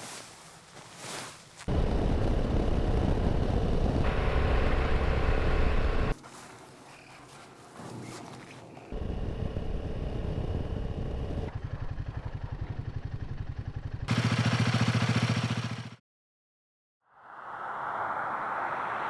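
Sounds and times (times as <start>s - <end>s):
motorcycle engine running: 1.6s - 6.2s, 8.8s - 16.0s.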